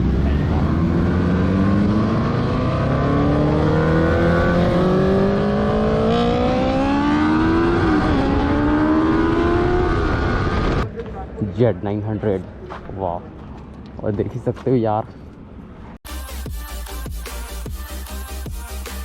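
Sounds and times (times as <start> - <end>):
motorcycle engine accelerating: 0.0 - 10.8.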